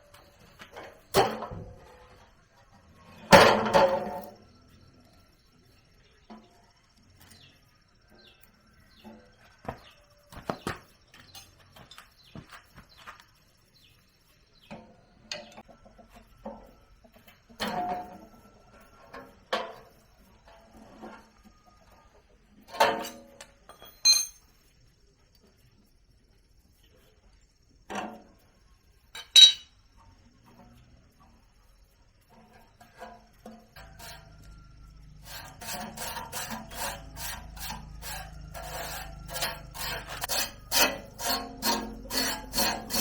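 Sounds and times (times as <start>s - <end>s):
knocks and clinks on metal: 22.7s - 24.6s, 29.1s - 29.8s.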